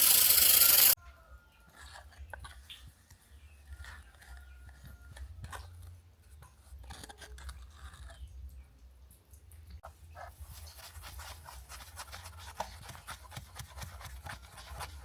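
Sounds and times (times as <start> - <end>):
small hand tools scraping and clicking: 0.0 - 1.0, 1.7 - 8.3.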